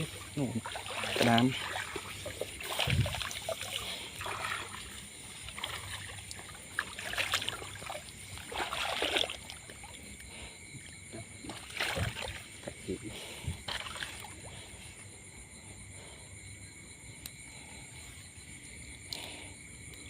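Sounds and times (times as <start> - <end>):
water splashing and sloshing: 0.0 - 16.1.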